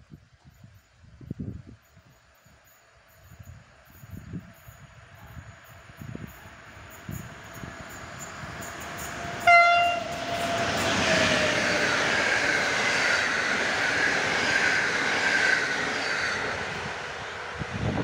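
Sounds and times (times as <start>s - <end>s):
train wheels on rails: 0.3s - 18.0s
locomotive horn blast: 9.4s - 11.1s.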